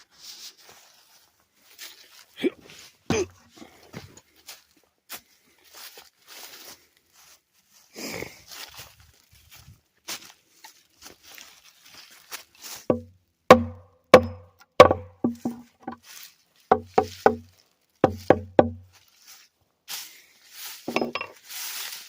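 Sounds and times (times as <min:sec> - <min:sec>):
soft scraping rustle: 0:00.0 - 0:03.0, 0:15.6 - 0:16.7, 0:18.9 - 0:22.0
sharp wooden knocks: 0:12.9 - 0:16.0, 0:16.7 - 0:18.8.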